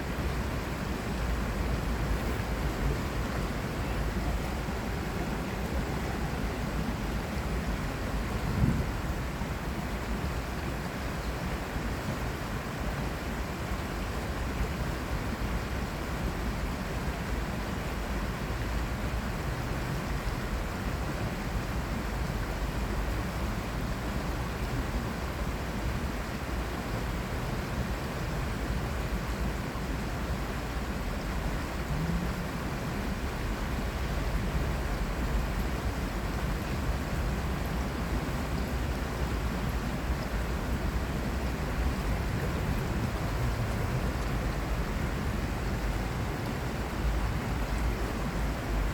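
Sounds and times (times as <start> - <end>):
city traffic rumble: 0.0 - 48.9
water flowing in a channel: 0.0 - 48.9.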